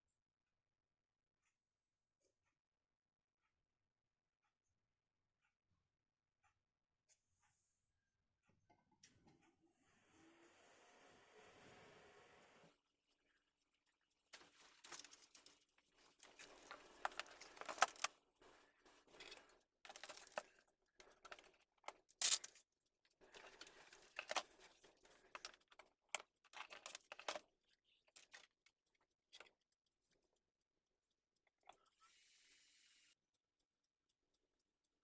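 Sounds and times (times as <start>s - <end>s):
computer parts clicking and tapping: 16.2s - 18.2s, 19.1s - 22.6s, 23.4s - 27.4s.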